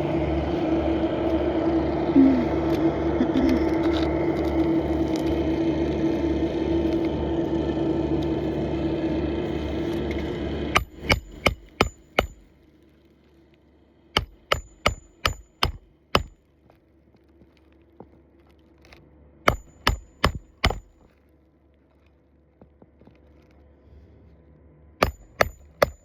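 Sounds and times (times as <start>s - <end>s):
hammer striking nails: 10.7s - 12.5s, 14.2s - 16.4s, 19.5s - 21.0s, 25.0s - 26.0s.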